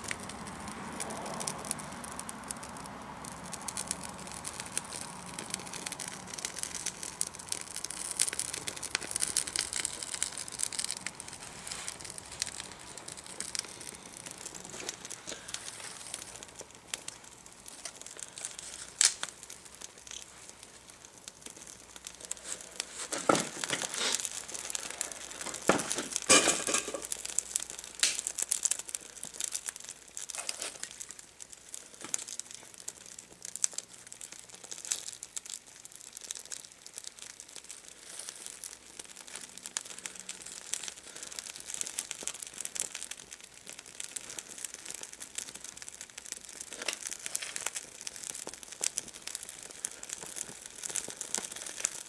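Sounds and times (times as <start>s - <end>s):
crackling and rustling: 0.0s - 52.0s.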